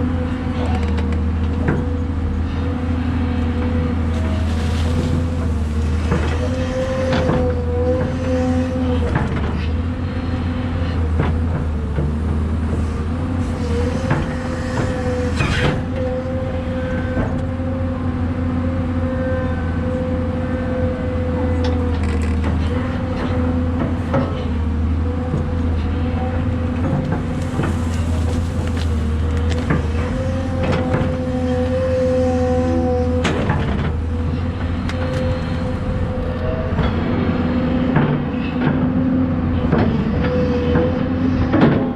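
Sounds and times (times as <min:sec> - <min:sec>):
excavator diesel engine running: 0:00.0 - 0:41.9
machine knocks and clanks: 0:05.0 - 0:08.2, 0:26.7 - 0:31.5.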